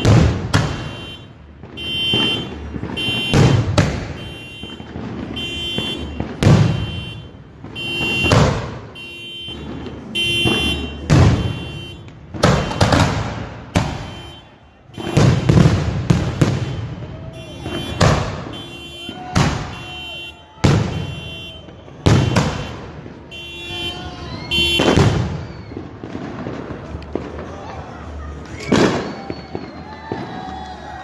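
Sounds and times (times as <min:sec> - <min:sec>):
firework booms echoing: 0:00.0 - 0:27.5, 0:28.7 - 0:29.7
car alarm wailing: 0:04.2 - 0:13.0, 0:13.8 - 0:15.6, 0:16.4 - 0:25.6.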